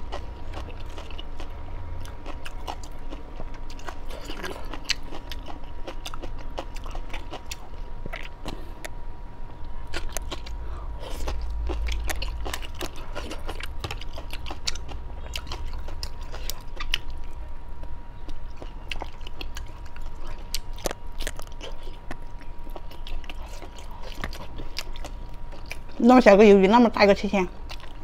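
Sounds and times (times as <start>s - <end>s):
person chewing and biting: 0.0s - 9.0s, 9.6s - 26.0s, 27.7s - 28.0s.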